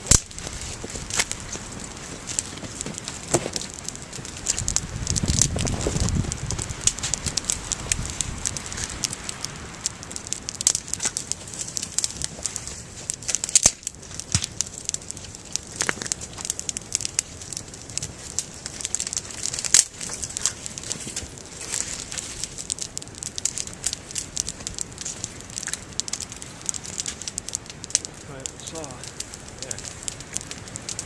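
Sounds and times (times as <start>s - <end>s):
low wind rumble: 0.0s - 31.0s
wood fire crackling and popping: 0.0s - 31.0s.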